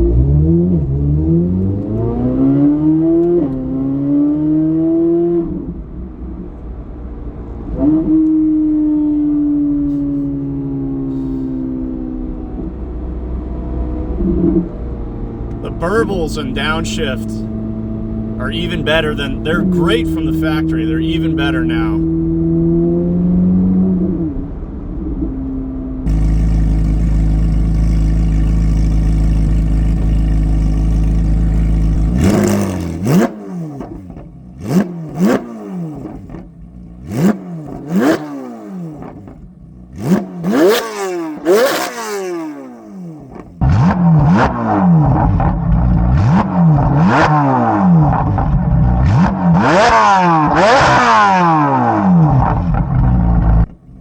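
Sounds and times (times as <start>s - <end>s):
sports car engine revving: 0.0s - 6.9s, 12.2s - 54.0s
exhaust cracks: 26.1s - 38.2s.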